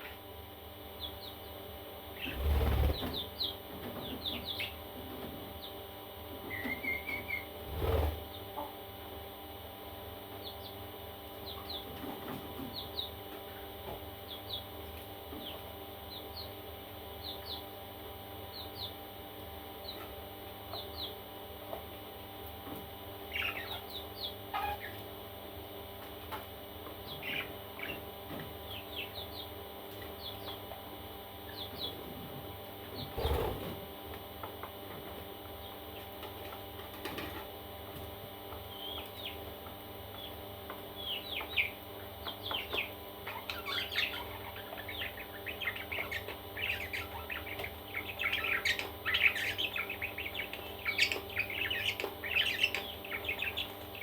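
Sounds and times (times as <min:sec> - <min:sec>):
parrot chicks chirping: 0:00.9 - 0:08.7, 0:10.4 - 0:17.8, 0:18.4 - 0:19.1, 0:19.7 - 0:21.2, 0:22.6 - 0:32.2, 0:32.8 - 0:33.8, 0:38.4 - 0:54.0.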